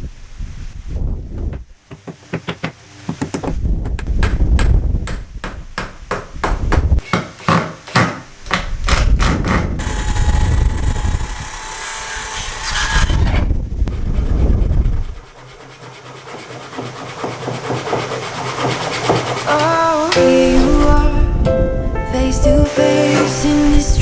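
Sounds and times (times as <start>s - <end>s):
power tool whining: 9.8s - 13.5s.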